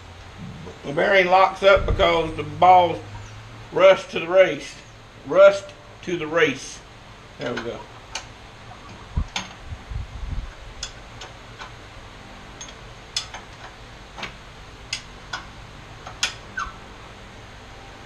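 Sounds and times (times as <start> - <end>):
low thumps: 0.4 - 0.9, 1.6 - 3.2, 9.0 - 10.5
tools clicking and tapping: 12.6 - 16.4.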